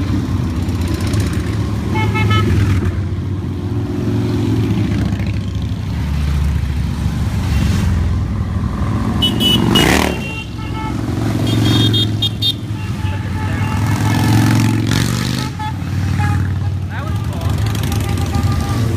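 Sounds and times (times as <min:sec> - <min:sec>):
motorcycles passing: 0:00.0 - 0:18.9
horn toots: 0:01.8 - 0:02.9, 0:09.2 - 0:18.9.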